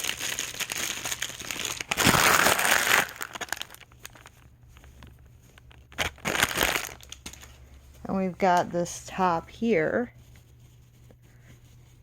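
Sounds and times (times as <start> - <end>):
packaging bag crinkling: 0.0 - 7.8.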